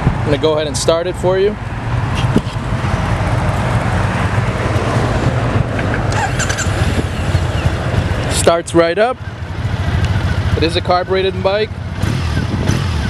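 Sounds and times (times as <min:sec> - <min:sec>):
motorcycle engine idling: 0:06.1 - 0:13.0.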